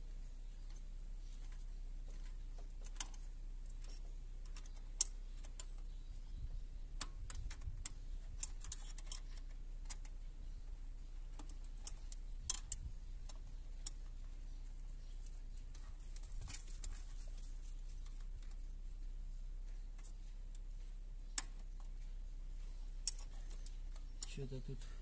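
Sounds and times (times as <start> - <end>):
steady low hum: 0.0 - 25.0
wrench metallic clicks and taps: 23.0 - 24.4.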